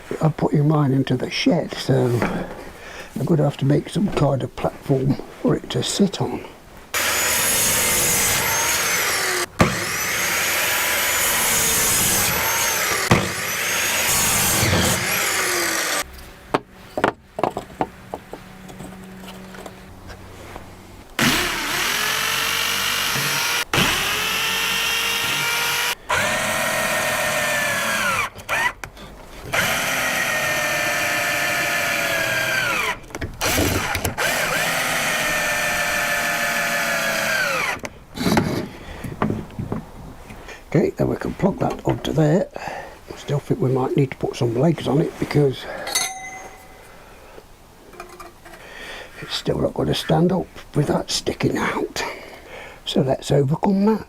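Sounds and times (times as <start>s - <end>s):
power drill running: 7.0s - 16.1s, 21.2s - 28.8s, 29.5s - 37.8s.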